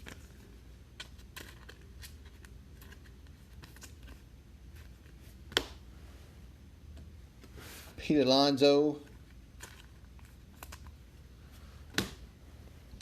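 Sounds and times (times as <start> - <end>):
cards rustling and clicking: 0.0 - 5.8, 9.0 - 11.0.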